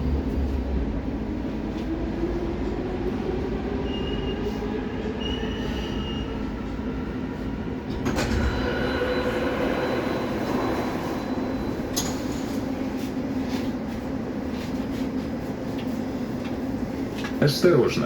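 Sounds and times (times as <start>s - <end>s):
metro train rumble: 0.0s - 18.0s
high squeal of wheels or brakes: 3.8s - 6.5s.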